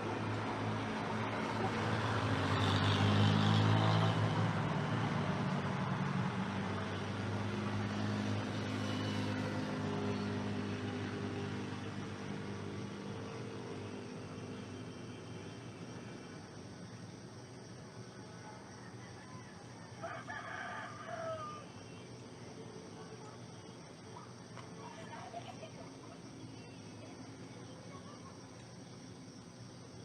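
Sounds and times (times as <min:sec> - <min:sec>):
engine passing by: 0:00.0 - 0:19.5.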